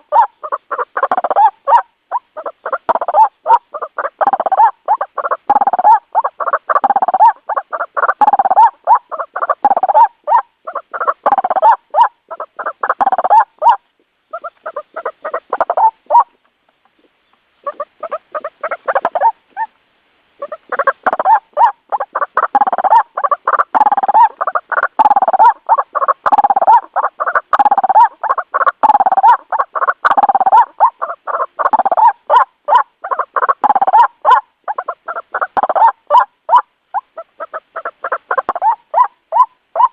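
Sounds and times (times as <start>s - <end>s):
waterhen calling harsh notes: 0.0s - 16.4s, 17.6s - 19.8s, 20.4s - 39.9s.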